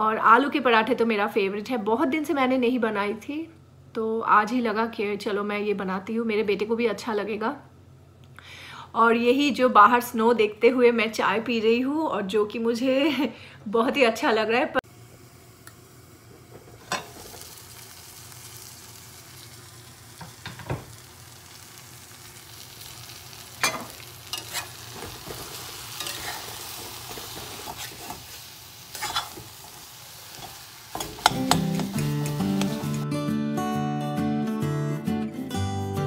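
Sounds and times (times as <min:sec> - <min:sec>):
filling sizzling in a pan: 0:14.8 - 0:33.1
metal spatula scraping a pan: 0:23.6 - 0:33.0.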